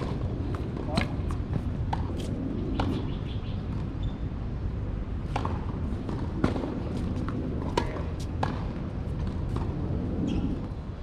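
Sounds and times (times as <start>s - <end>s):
birds chirping: 2.5s - 4.3s.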